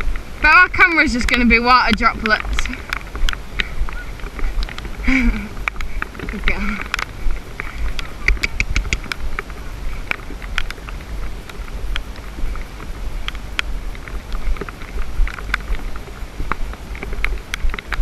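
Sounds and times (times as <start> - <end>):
wind buffeting microphone: 0.0 - 18.0
sharp ticks: 0.6 - 12.6.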